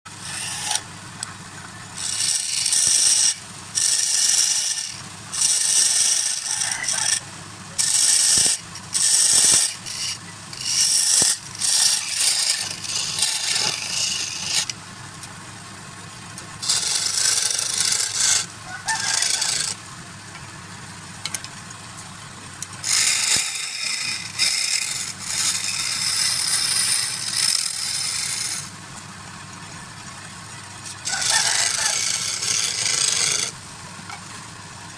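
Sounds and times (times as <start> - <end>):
turning tool scraping wood: 0.1 - 1.3, 1.9 - 14.8, 16.6 - 19.8, 22.8 - 28.8, 30.8 - 34.2
wood lathe motor humming: 0.1 - 14.8, 16.6 - 19.8, 22.8 - 28.8, 30.6 - 33.6.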